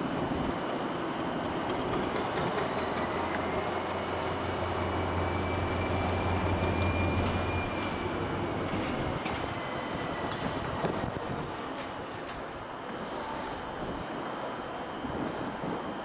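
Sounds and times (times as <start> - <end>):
train rumbling on rails: 0.0 - 16.0
low hum: 1.3 - 11.5.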